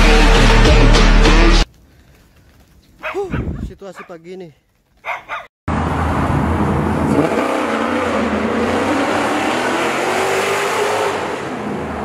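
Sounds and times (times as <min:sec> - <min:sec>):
car engine revving: 0:05.7 - 0:12.0.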